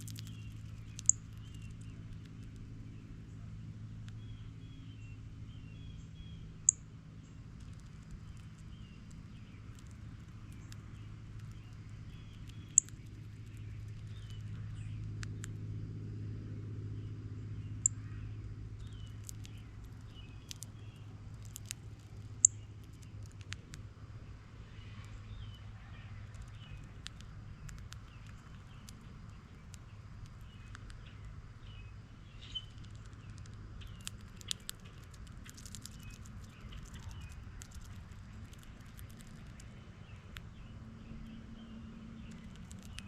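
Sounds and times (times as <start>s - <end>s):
distant traffic rumble: 0.0s - 43.0s
small birds chirping: 0.0s - 43.0s
sharp clicks: 18.8s - 23.8s, 26.3s - 31.3s, 32.5s - 39.7s, 42.2s - 43.0s.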